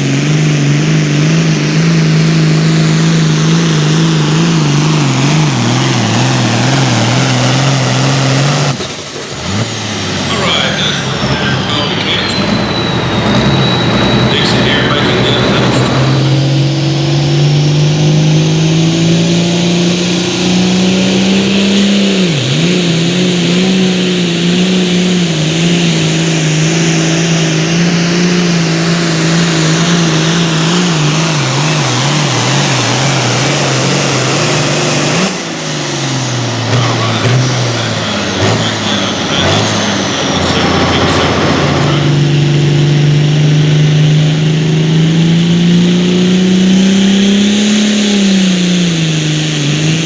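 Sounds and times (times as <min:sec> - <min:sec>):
engine at full throttle: 0:00.0 - 0:50.0.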